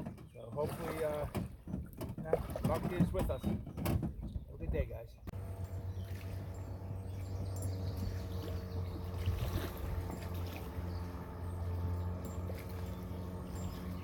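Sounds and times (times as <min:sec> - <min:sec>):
water trickling and splashing: 0:00.2 - 0:03.4, 0:05.3 - 0:14.0
steady low hum: 0:05.3 - 0:14.0.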